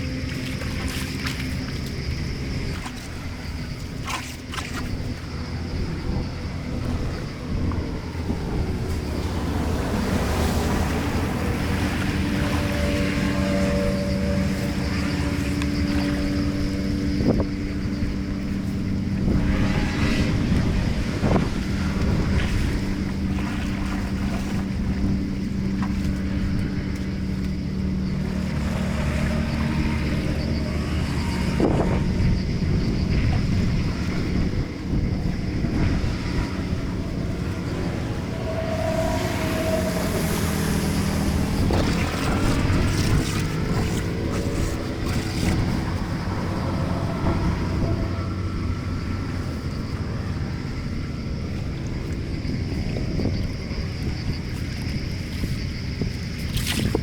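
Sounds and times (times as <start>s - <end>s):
water rushing through drain grate: 0.0s - 50.4s, 51.4s - 57.0s
low hum: 0.0s - 57.0s
wind buffeting microphone: 0.0s - 57.0s.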